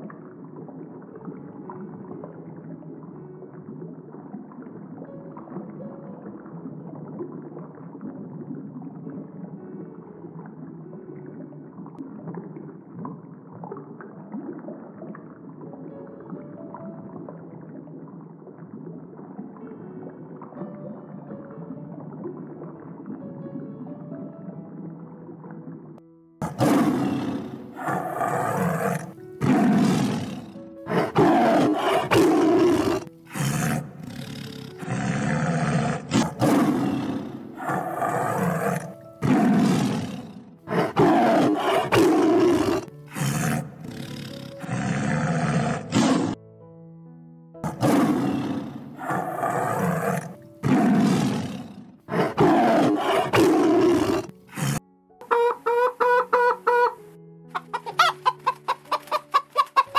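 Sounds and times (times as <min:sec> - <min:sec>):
soft background music: 0:00.0 - 0:59.9
tiger roaring and snarling: 0:26.4 - 0:46.4, 0:47.6 - 0:54.8.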